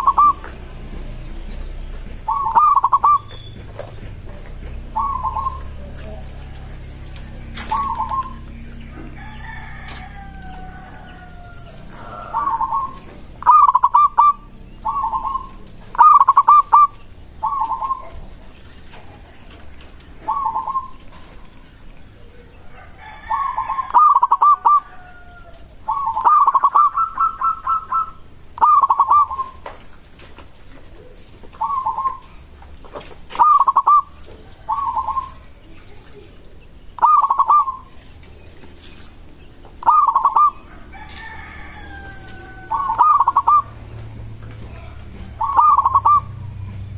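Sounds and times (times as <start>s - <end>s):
dove cooing: 0.0s - 29.7s, 30.7s - 39.0s, 39.7s - 46.9s
faint drawn-out falling calls: 0.0s - 36.3s, 36.9s - 46.4s.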